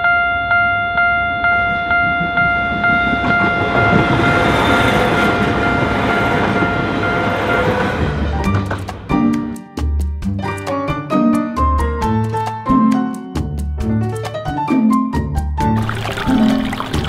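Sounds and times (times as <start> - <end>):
level crossing bell ringing: 0.0 - 8.0
train running noise: 0.5 - 9.5.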